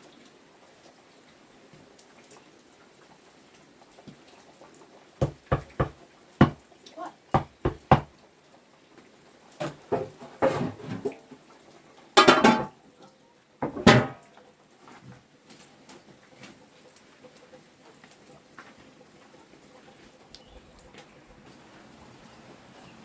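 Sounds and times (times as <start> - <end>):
sharp knocks and bangs: 5.2 - 6.6, 7.4 - 8.1, 13.6 - 14.2.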